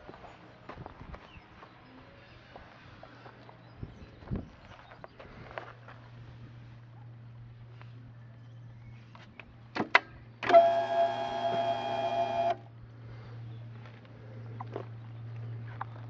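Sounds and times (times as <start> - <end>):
small electric motor whining: 10.5 - 12.6.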